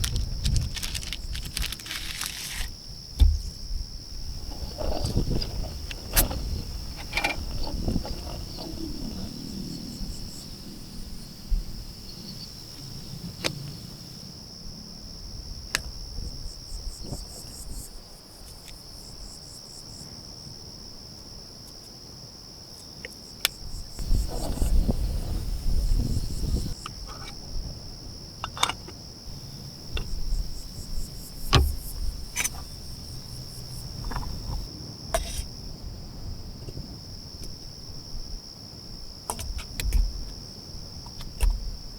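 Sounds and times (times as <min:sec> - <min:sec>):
sharp clicks and knocks: 0:00.0 - 0:03.6, 0:31.4 - 0:32.7
crickets chirping: 0:00.0 - 0:41.9.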